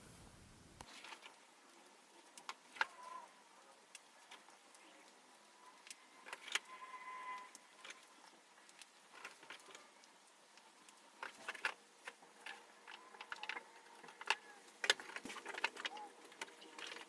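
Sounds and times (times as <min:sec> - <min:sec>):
squeaky scrapes: 0:05.6 - 0:07.6.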